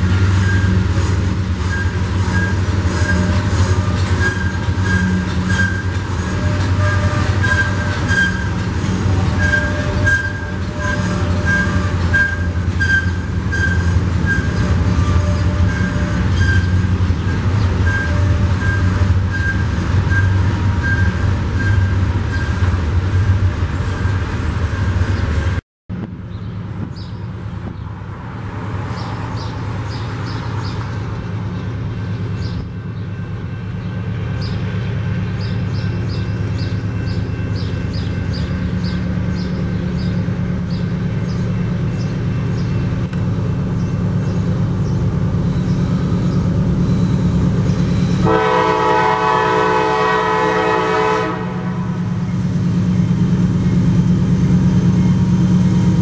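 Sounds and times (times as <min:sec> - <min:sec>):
freight train approaching: 0:00.0 - 0:56.0
freight train rumbling past: 0:00.0 - 0:56.0
high wheel squeal: 0:00.3 - 0:23.3, 0:43.7 - 0:48.8.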